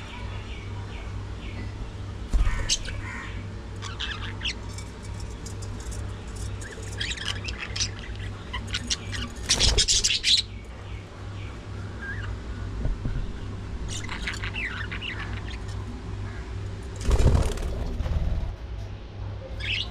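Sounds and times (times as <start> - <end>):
steady low hum: 0.0 - 19.9
budgerigars chirping and squawking: 2.4 - 12.4, 13.3 - 16.5, 19.6 - 19.9.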